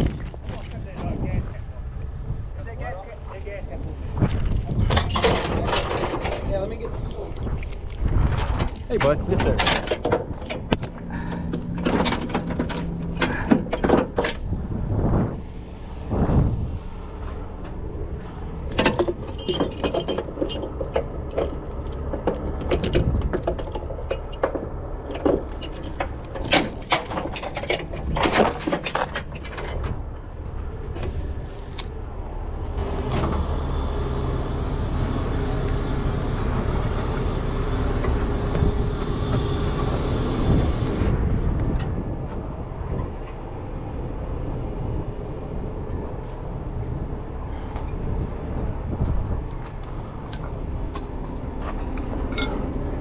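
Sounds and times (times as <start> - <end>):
metal rigging clanking: 4.2 - 6.9, 8.3 - 14.6, 18.6 - 30.0, 49.5 - 53.0
truck diesel engine running: 32.4 - 41.6.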